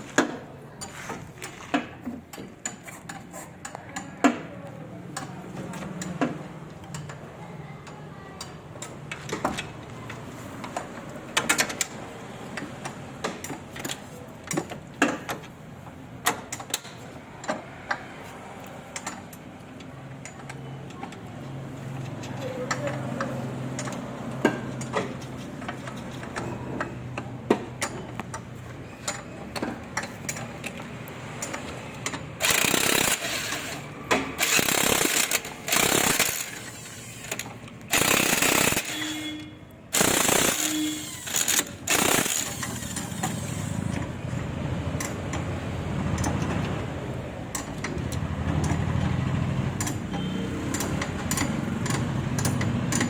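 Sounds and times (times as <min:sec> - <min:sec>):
pneumatic impact wrench bursts: 0:32.4 - 0:44.0.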